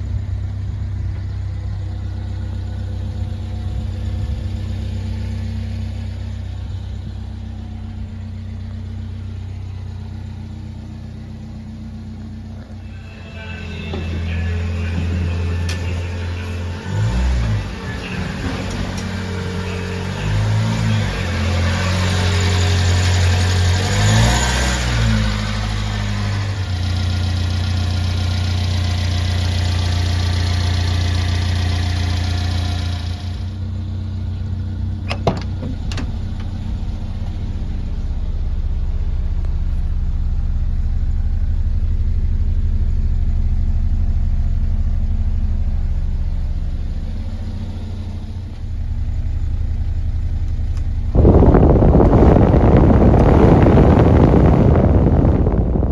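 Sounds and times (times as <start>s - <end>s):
truck engine revving and running: 0.0s - 55.9s.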